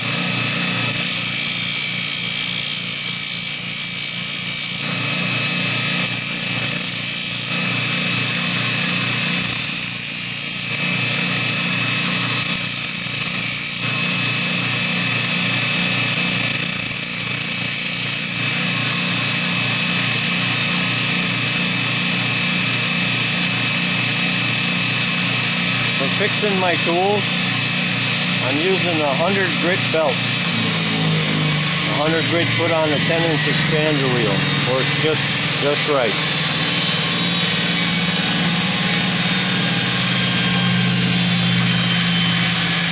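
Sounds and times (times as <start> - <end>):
grinder motor humming: 0.0 - 42.9
belt grinding steel: 24.1 - 42.9.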